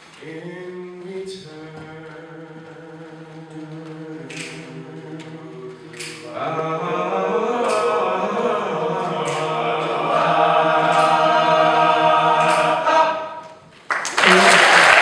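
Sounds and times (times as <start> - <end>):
men's choir holding a chord: 1.8 - 13.6.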